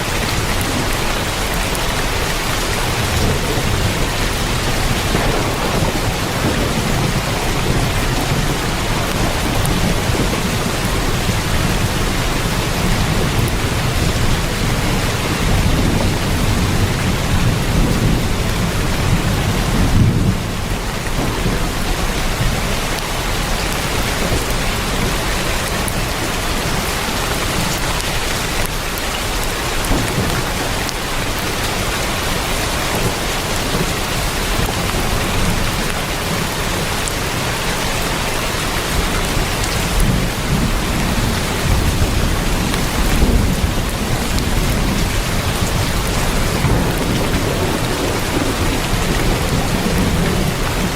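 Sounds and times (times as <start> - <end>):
heavy rain on a tin roof: 0.0 - 50.9
thunder rumbling: 0.0 - 50.9.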